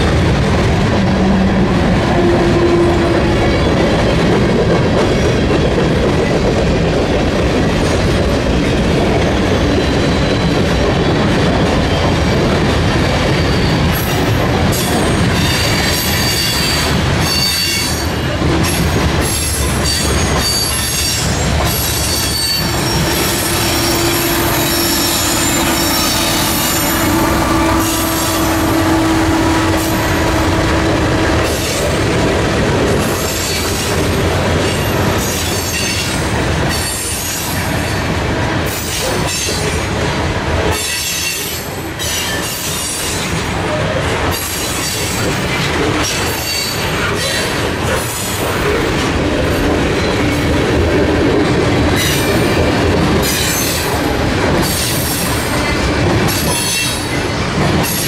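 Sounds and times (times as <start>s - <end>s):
diesel locomotive engine: 0.0s - 58.0s
wheel squeal: 19.9s - 28.9s.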